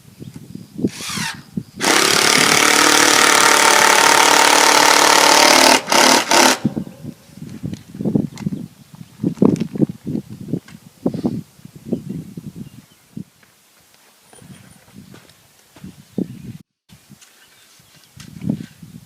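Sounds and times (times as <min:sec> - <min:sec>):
handheld power tool running: 0:00.9 - 0:06.8.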